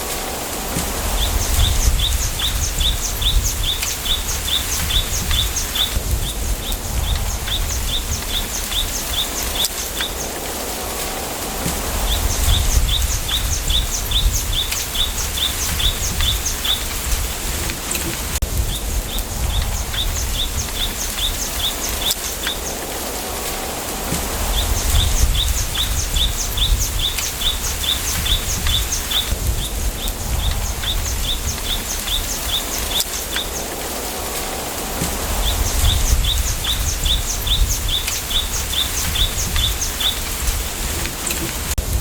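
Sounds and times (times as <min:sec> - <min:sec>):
wind rumble on microphone: 0:00.0 - 0:42.0
wind through bamboo leaves: 0:00.0 - 0:42.0
bird chirping rapidly: 0:01.1 - 0:10.4, 0:11.7 - 0:17.1, 0:24.4 - 0:33.8, 0:35.3 - 0:40.4.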